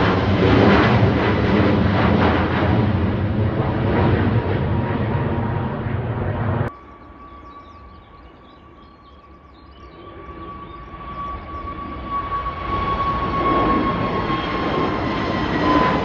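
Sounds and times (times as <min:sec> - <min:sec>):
jet engine whine: 0:00.0 - 0:16.0
jet engines roaring: 0:00.0 - 0:16.0.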